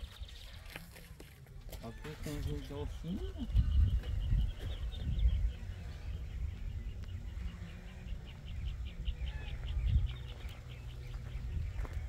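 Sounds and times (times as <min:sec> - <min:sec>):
bird chirping: 0:01.9 - 0:12.0
low rumble: 0:03.5 - 0:12.0.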